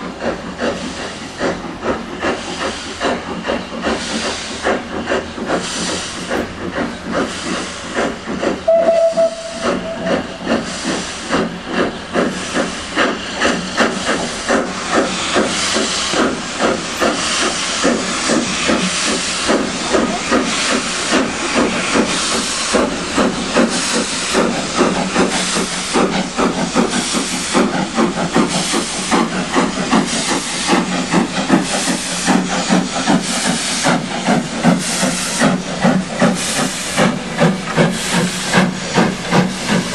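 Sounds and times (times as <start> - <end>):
hiss of steam: 0.0 - 39.9
steam locomotive chuffing: 0.0 - 39.9
steam whistle blast: 8.6 - 10.5.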